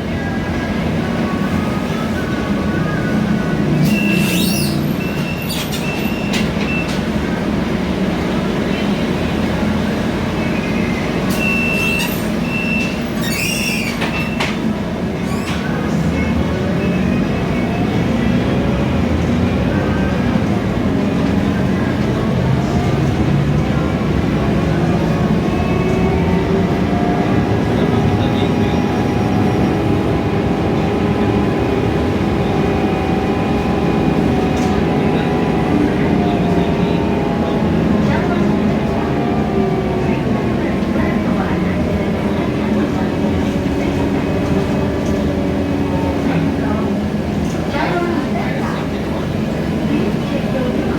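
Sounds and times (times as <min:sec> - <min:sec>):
bus engine and road rumble: 0:00.0 - 0:50.9
short high squeals: 0:03.8 - 0:06.3, 0:11.3 - 0:14.4.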